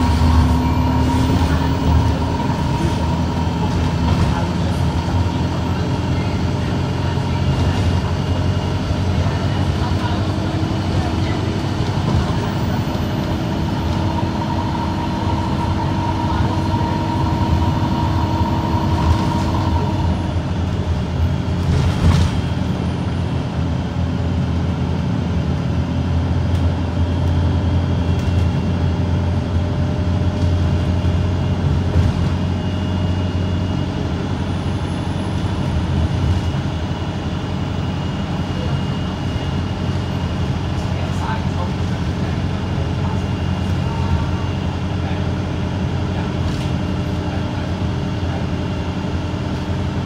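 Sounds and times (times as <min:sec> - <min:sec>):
steady whine: 0:00.0 - 0:21.5
bus diesel engine drone: 0:00.0 - 0:50.0.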